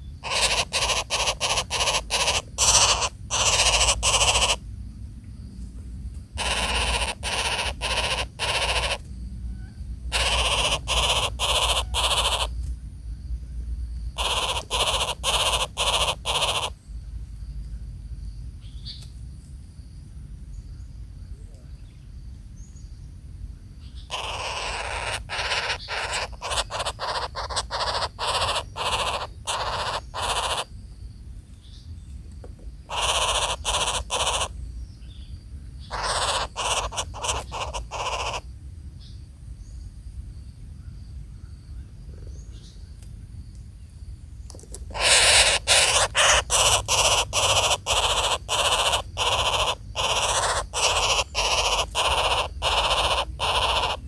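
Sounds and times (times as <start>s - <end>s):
harsh rasping bird calls: 0.0s - 4.7s, 6.4s - 12.6s, 14.1s - 16.9s, 23.8s - 30.8s, 32.8s - 39.2s, 44.7s - 54.0s.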